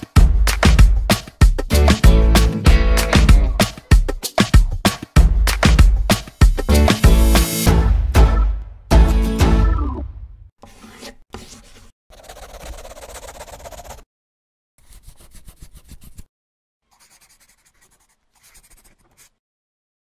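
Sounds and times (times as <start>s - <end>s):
pen scribbling on paper: 10.6s - 14.1s, 14.8s - 16.3s, 16.9s - 19.4s.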